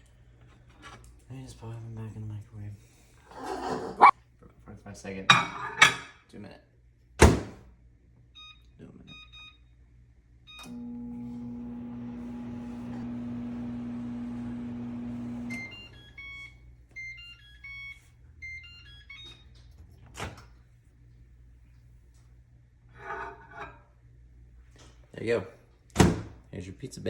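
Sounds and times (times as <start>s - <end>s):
microwave oven humming: 9.2s - 20.7s
microwave click: 10.6s - 16.3s.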